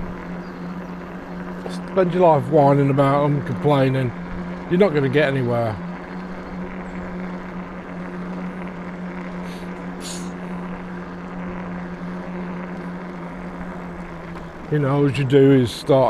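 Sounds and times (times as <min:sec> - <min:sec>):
electric bike motor humming: 0:00.0 - 0:16.0.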